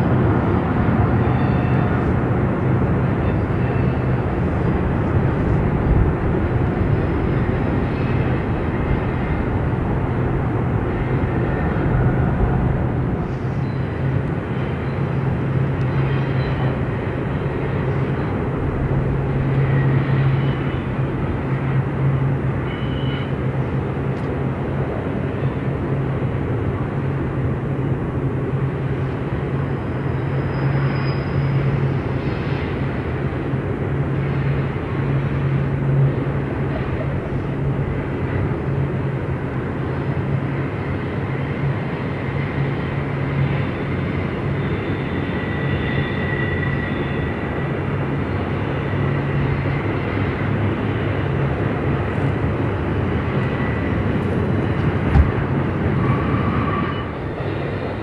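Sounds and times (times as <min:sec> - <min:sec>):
constant low hum: 0:00.0 - 0:29.8
train wheels rolling on rails: 0:28.4 - 0:58.0.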